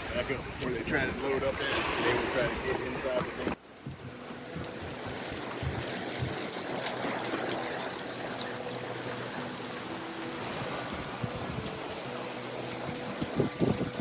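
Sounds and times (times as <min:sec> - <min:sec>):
trickling splashing water: 0:00.0 - 0:14.0.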